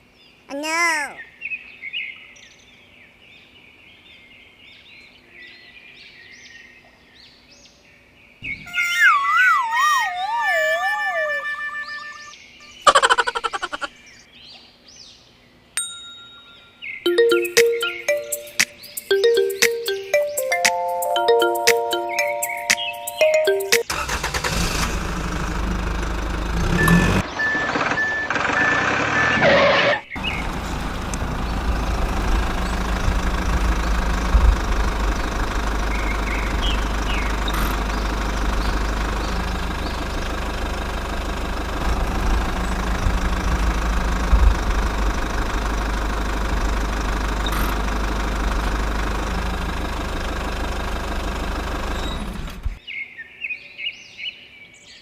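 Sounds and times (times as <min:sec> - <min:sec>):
small engine running: 0:23.9 - 0:29.6, 0:30.2 - 0:52.8.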